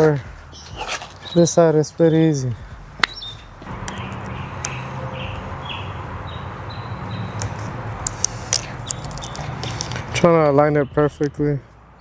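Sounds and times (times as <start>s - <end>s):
light clicks: 3.7s - 5.5s, 7.4s - 10.2s.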